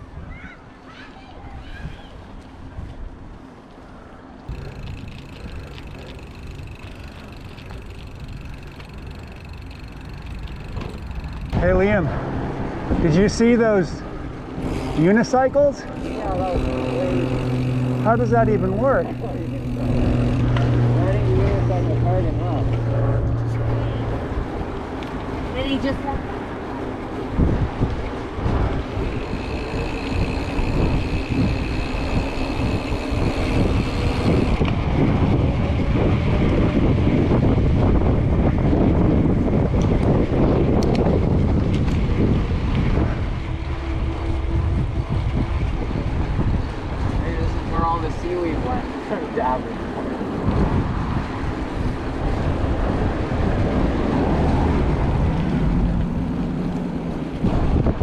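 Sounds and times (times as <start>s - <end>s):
wind rushing over microphone: 9.9s - 58.0s
thin high whine: 14.6s - 24.2s, 28.9s - 34.8s.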